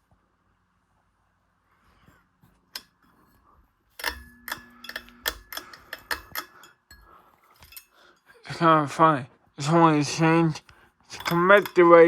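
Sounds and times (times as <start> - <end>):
glass and metal parts clinking: 4.0 - 8.4, 11.1 - 12.0.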